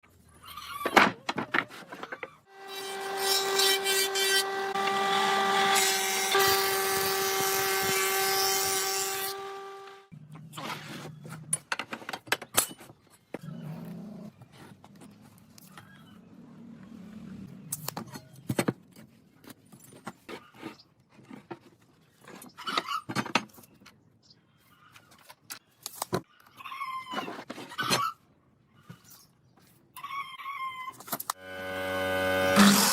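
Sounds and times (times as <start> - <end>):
power tool whining: 2.5 - 10.1, 31.3 - 32.9.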